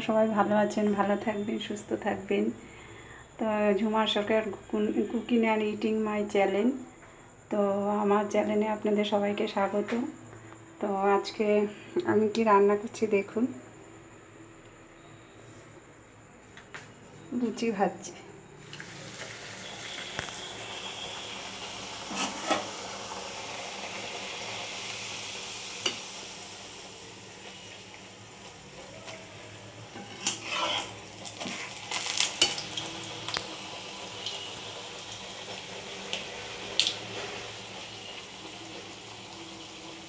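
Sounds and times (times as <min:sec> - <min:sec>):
frying in hot oil sizzle: 0:18.6 - 0:40.0
metal utensil clattering on pan: 0:29.9 - 0:32.8.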